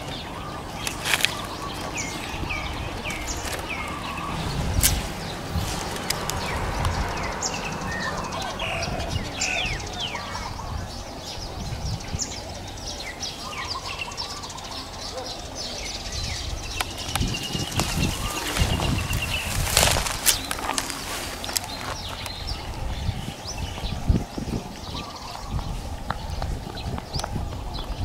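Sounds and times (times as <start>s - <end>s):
small birds chirping: 0.0s - 28.0s
low rumble: 2.1s - 12.2s.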